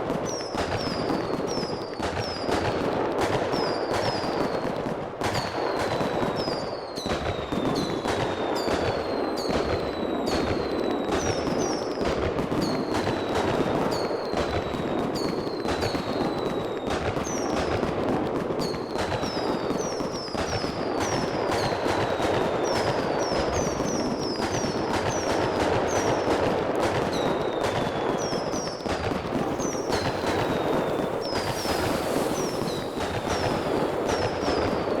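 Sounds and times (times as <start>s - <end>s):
fireworks crackling rumble: 0.0s - 35.0s
fireworks whistles falling: 0.3s - 2.8s, 12.6s - 17.8s, 18.6s - 35.0s
fireworks bangs: 0.3s - 35.0s.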